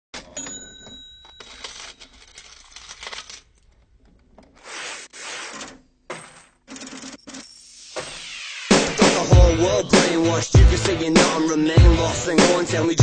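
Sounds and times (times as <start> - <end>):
coins clattering and jingling: 0.2 - 3.6.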